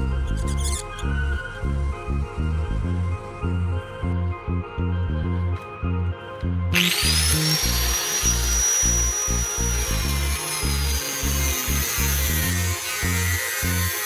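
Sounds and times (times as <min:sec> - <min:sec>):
background music with steady beat: 0:00.0 - 0:14.0
power tool whining: 0:06.7 - 0:14.0.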